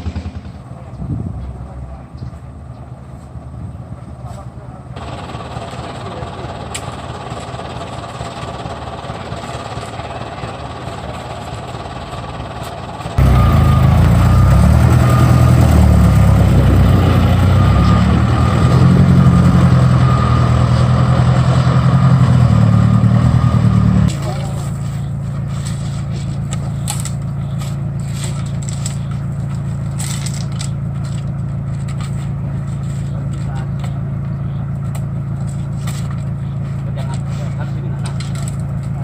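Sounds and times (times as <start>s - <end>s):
truck engine running: 0.0s - 39.0s.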